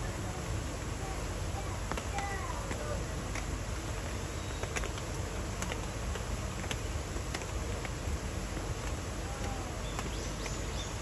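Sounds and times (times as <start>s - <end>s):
rain falling: 0.0s - 11.0s
raindrops ticking: 0.8s - 11.0s.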